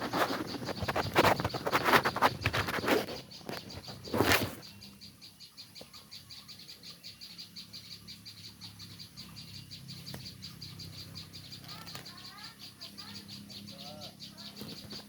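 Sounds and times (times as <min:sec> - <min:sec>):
rustling: 0:00.0 - 0:04.7
high evenly spaced chirps: 0:00.1 - 0:15.0.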